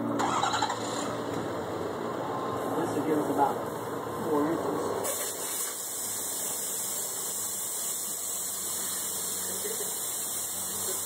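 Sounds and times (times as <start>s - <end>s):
air hissing from tyre valve: 5.0s - 11.0s.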